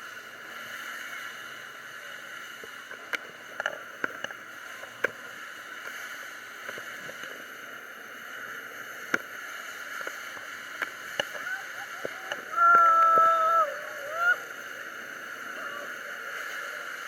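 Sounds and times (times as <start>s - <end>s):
falling water rushing: 9.2s - 17.0s.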